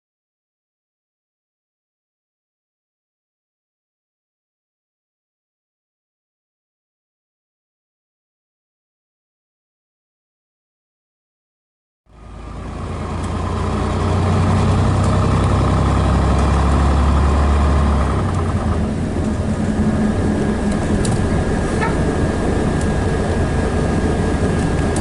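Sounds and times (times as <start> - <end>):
bus diesel engine droning: 12.1 - 25.0.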